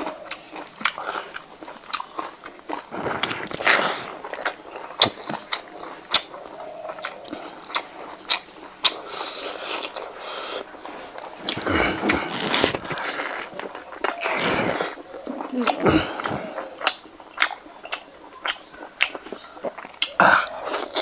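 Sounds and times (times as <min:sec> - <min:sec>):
chewing food: 0:00.0 - 0:21.0
wet mouth smacks: 0:15.6 - 0:20.2.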